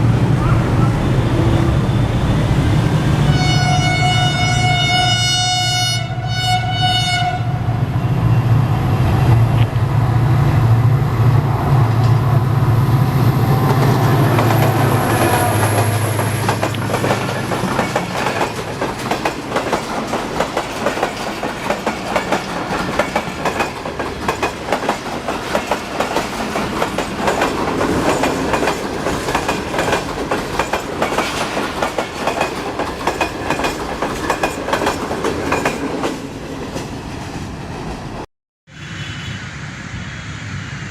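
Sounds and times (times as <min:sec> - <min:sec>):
train horn blast: 0:03.1 - 0:07.9
train wheels clattering: 0:13.6 - 0:38.0.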